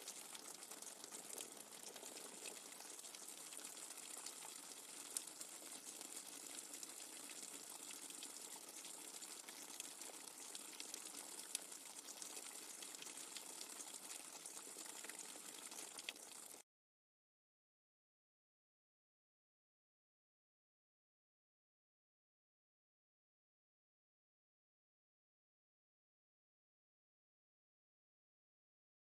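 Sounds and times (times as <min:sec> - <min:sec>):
raindrops ticking: 0:00.0 - 0:16.6.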